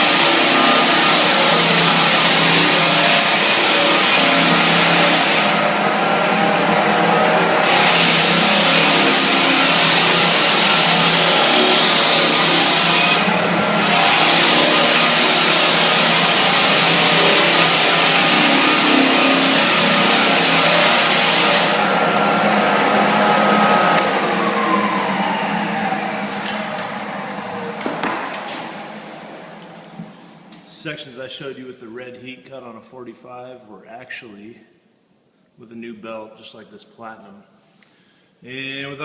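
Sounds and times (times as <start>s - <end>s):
motor winding down whine: 0.0s - 30.1s
motor hum: 0.0s - 30.6s
floor sander grinding wood: 0.0s - 30.8s.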